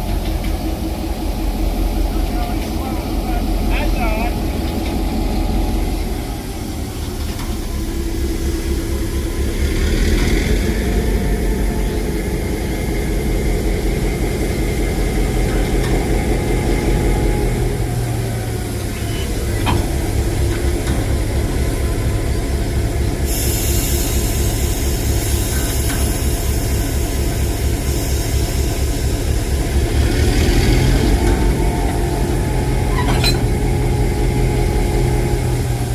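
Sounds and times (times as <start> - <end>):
locomotive engine rumbling: 0.0 - 35.9
high hiss: 23.2 - 29.4.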